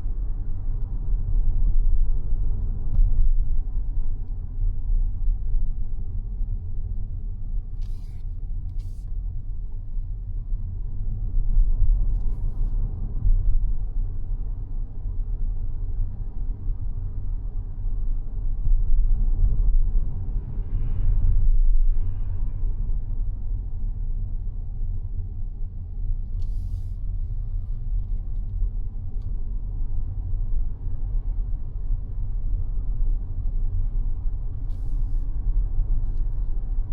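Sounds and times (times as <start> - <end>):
brief hisses: 7.8 - 8.2, 26.4 - 27.0.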